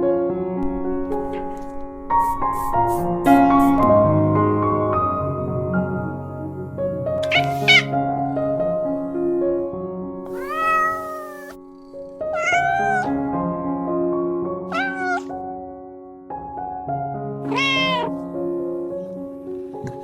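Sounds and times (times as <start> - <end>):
cat meowing: 7.2 - 8.0, 10.3 - 11.6, 12.3 - 13.2, 14.7 - 15.4, 17.4 - 18.2.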